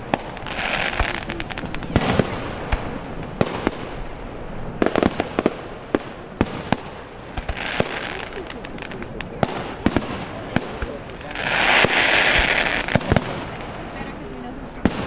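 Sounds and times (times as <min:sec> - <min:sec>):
continuous rushing hiss: 0:00.0 - 0:15.0
fireworks bangs: 0:00.0 - 0:15.0.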